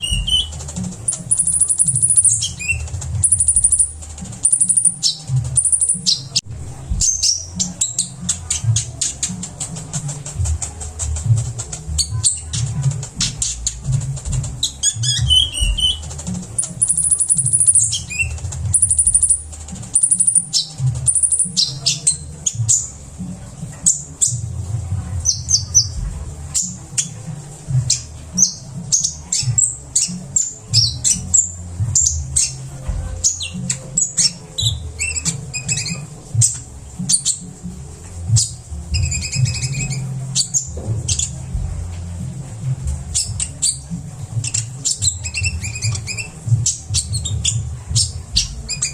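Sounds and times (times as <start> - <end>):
sunbird singing: 0.0 - 6.4, 14.6 - 22.9.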